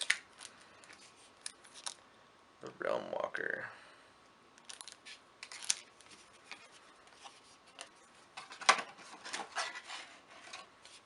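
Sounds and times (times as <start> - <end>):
cards being handled: 4.6 - 10.1.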